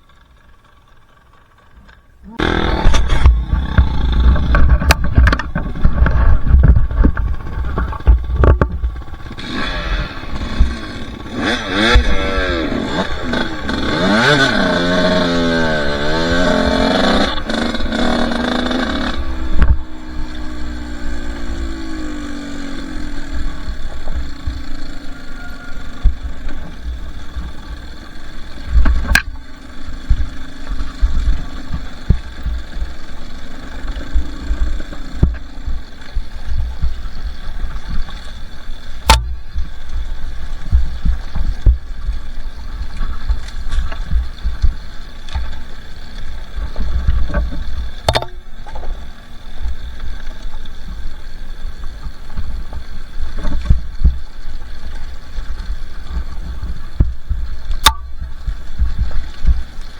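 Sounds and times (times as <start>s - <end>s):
dirt bike engine running: 0.0s - 59.9s
low thumping on microphone: 40.7s - 42.2s
sharp knocks: 48.1s - 48.4s.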